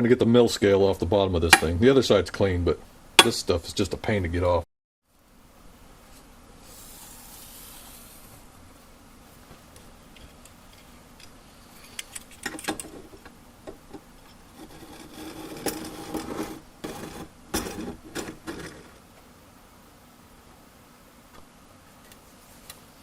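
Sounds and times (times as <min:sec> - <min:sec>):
steel plate and tools handled: 0:13.9 - 0:18.9.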